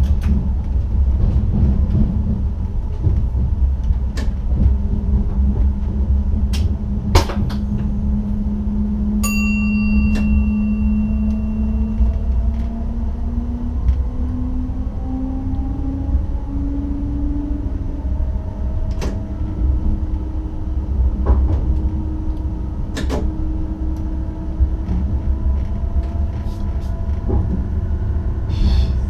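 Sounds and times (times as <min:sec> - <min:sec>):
electric train rumble and motor hum: 0:00.0 - 0:29.0
short bell-like chime: 0:09.2 - 0:12.3.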